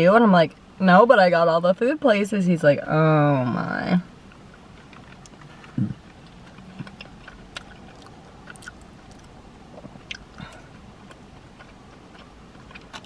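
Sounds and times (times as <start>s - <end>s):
person chewing food: 4.3s - 13.0s.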